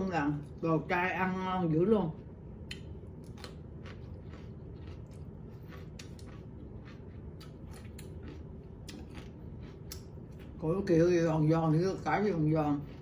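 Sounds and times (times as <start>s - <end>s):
low room hum: 0.0s - 13.0s
person chewing crunchy food: 2.1s - 11.0s, 11.9s - 13.0s.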